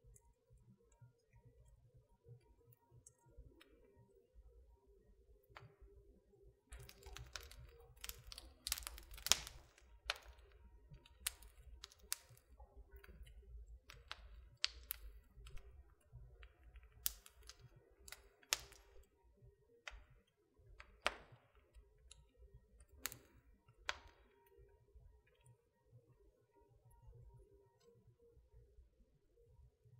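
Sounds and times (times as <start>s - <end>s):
fire pops and snaps: 6.7s - 19.1s, 19.8s - 21.5s, 22.1s - 24.4s
wood fire crackling: 6.7s - 19.2s, 19.8s - 24.7s.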